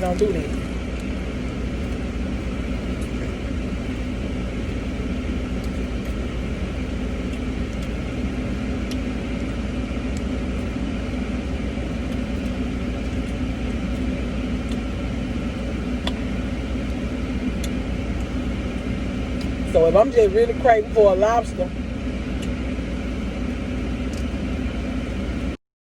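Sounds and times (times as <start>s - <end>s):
car idling: 0.0s - 25.6s
faint clicks: 4.6s - 8.2s.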